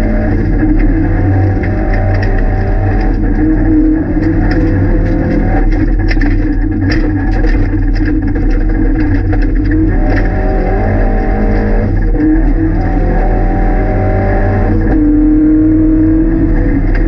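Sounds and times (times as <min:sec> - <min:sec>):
gravel ticking on car: 0:00.0 - 0:13.0
car engine running hard: 0:00.0 - 0:17.0.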